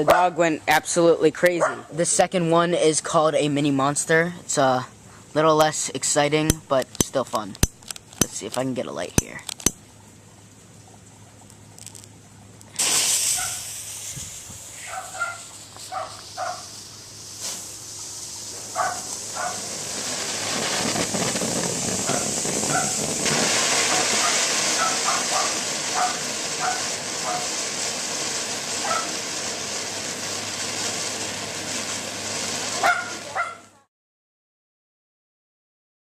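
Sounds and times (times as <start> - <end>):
dog barking: 1.6 - 1.9, 13.4 - 13.6, 14.8 - 16.7, 18.7 - 19.6, 22.1 - 23.0, 24.2 - 27.5, 28.8 - 29.2, 32.8 - 33.7
firework spraying with hiss: 12.7 - 33.7.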